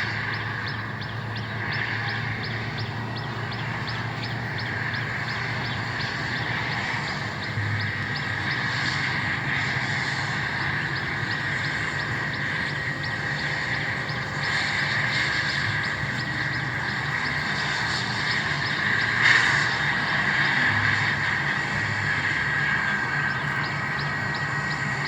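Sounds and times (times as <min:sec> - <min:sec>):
jet engines whining: 0:00.0 - 0:25.0.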